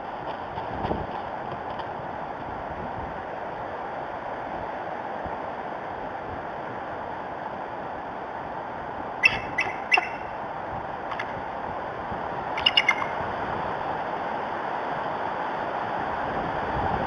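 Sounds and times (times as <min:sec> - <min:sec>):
wind noise on microphone: 0:00.0 - 0:17.0
eagle high chirping calls: 0:09.2 - 0:10.3, 0:12.6 - 0:13.2.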